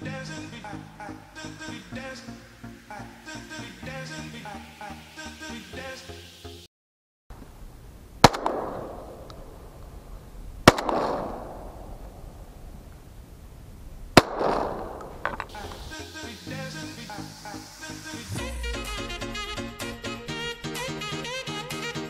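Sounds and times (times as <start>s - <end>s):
shotgun shots with echo: 8.2s - 9.2s, 10.6s - 11.7s, 14.2s - 15.0s.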